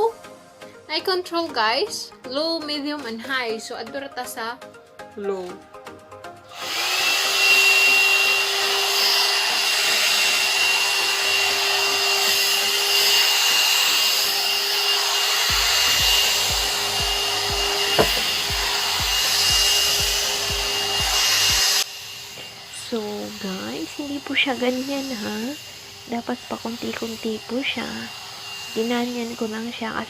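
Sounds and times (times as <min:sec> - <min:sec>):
hot-air dryer brush blowing: 0:06.5 - 0:30.0.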